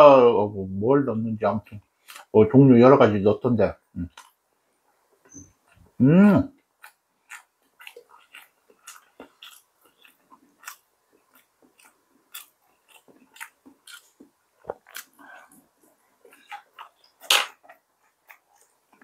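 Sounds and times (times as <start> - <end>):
chewing and biting food: 6.6 - 19.0.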